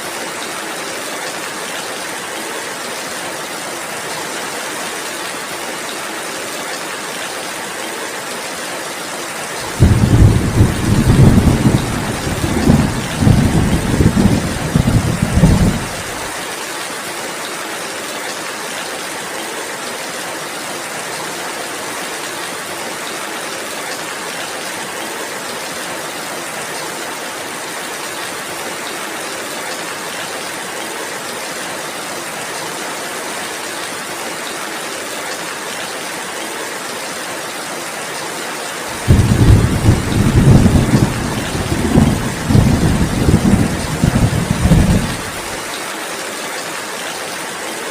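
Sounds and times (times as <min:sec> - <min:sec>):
steady rainfall: 0:00.0 - 0:47.9
thunder rumbling: 0:09.7 - 0:16.3, 0:39.0 - 0:45.6.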